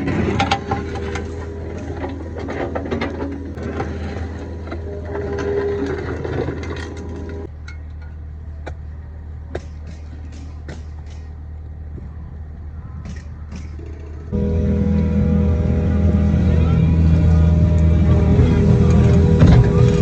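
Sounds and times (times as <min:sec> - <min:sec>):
excavator diesel engine running: 0:00.0 - 0:12.0, 0:13.9 - 0:20.0.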